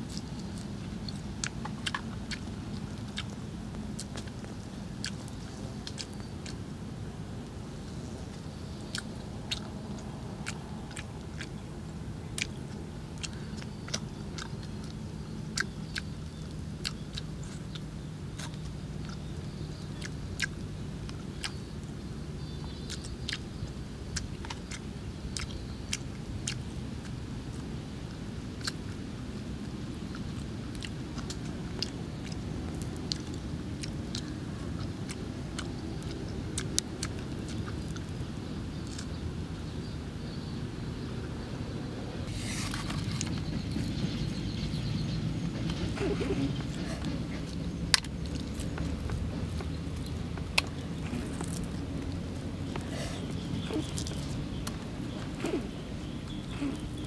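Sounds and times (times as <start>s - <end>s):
chewing and lip-smacking: 0.0s - 41.0s, 42.3s - 57.0s
wet mouth clicks: 0.1s - 6.6s, 8.9s - 11.6s, 12.3s - 21.6s, 24.1s - 27.2s, 28.6s - 29.0s, 30.1s - 39.3s, 45.6s - 57.0s.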